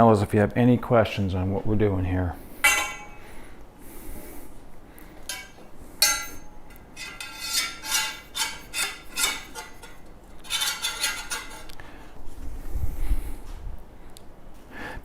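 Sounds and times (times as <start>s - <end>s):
metal frame parts clinking: 2.6s - 3.4s, 5.2s - 11.8s
metallic ring: 2.6s - 3.5s, 5.3s - 11.7s.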